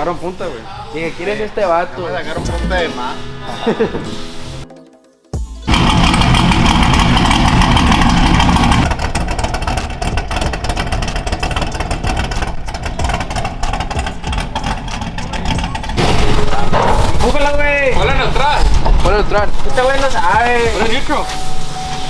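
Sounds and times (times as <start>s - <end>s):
vehicle engine running: 5.7s - 22.0s.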